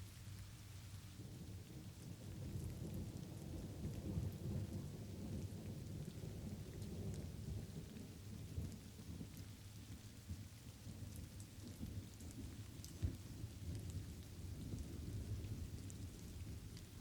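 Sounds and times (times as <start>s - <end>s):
light rain falling: 0.0s - 17.0s
rolling thunder rumble: 1.2s - 9.4s.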